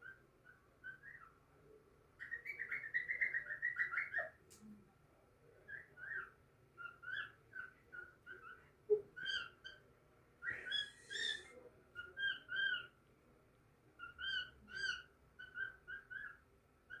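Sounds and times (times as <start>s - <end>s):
harsh scratchy bird call: 10.5s - 11.5s.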